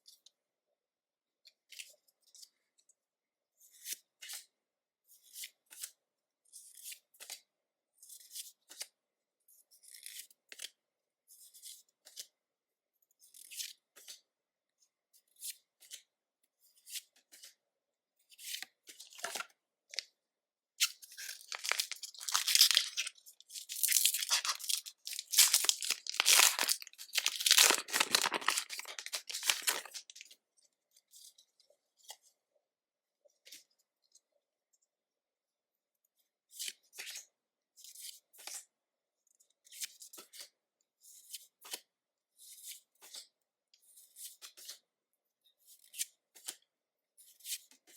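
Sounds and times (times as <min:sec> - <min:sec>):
foil wrapper tearing and crinkling: 0:21.2 - 0:30.2
trading cards rustling: 0:21.2 - 0:30.2.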